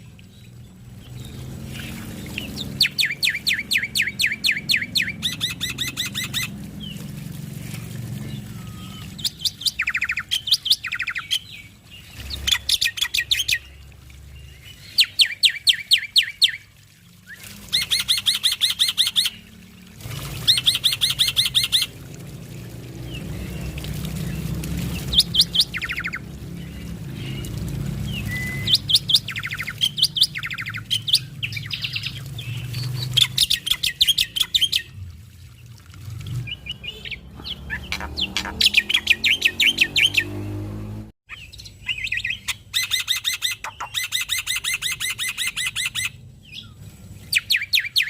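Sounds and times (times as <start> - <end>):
starling singing: 1.0 - 7.0, 36.5 - 40.3.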